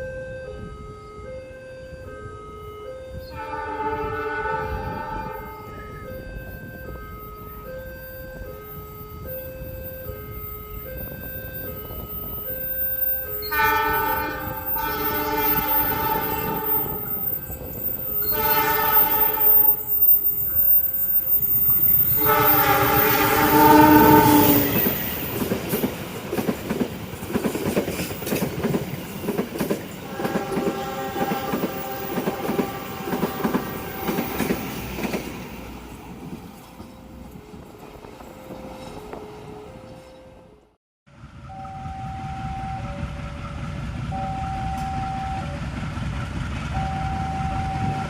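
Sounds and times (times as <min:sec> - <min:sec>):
locomotive horn blasts: 0:03.1 - 0:06.3, 0:13.4 - 0:17.3, 0:18.1 - 0:20.0, 0:22.0 - 0:25.0, 0:30.0 - 0:34.6
train wheels clacking over rail joints: 0:24.5 - 0:35.5.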